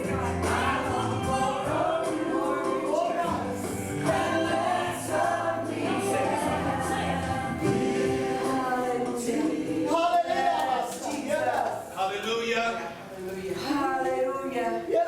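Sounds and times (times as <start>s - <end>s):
bass: 0.0s - 9.3s
choir singing: 0.0s - 11.8s.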